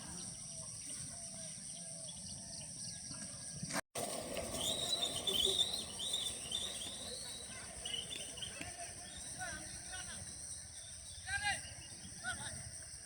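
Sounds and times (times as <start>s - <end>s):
bird chirping: 4.4s - 12.8s.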